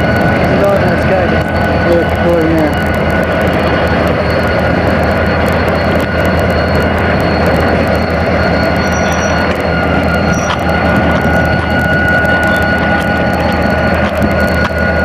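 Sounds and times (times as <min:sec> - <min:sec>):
diesel locomotive idling: 0:00.0 - 0:15.0
thin high whine: 0:00.0 - 0:15.0.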